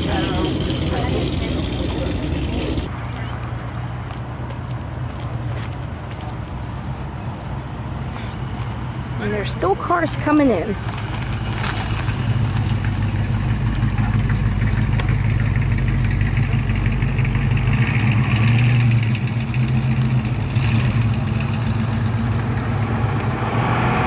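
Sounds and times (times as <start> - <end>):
car engine running: 0.0 - 3.3, 9.1 - 23.4.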